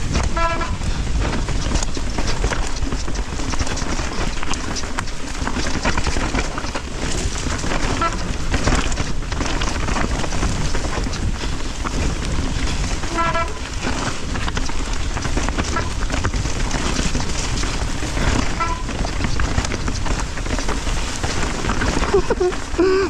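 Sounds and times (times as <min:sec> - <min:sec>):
bike tyres rattling over ground: 0:00.0 - 0:23.0
wind rumble on microphone: 0:00.0 - 0:23.0.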